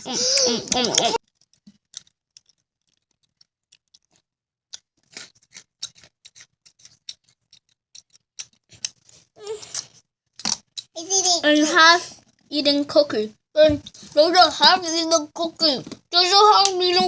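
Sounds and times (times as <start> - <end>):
crisp clicks and crackles: 0.2 - 11.0.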